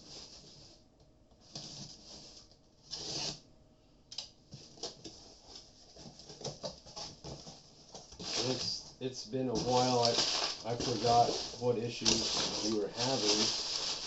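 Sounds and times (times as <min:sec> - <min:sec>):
packing material rustling: 0:04.6 - 0:08.9, 0:09.5 - 0:14.0.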